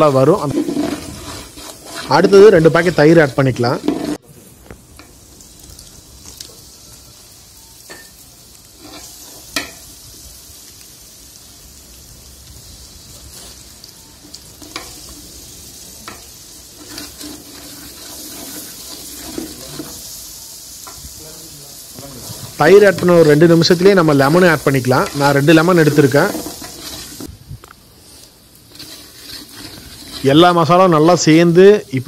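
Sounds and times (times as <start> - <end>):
masala sizzling in pot: 0.0 - 32.0
ladle scraping and clicking on pot: 0.4 - 2.1, 16.8 - 20.0, 28.7 - 30.4.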